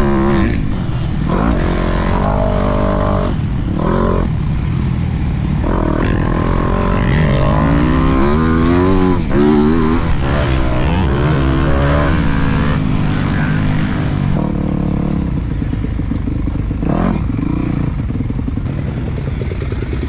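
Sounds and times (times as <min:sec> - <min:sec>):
motocross bike engine revving: 0:00.0 - 0:20.0.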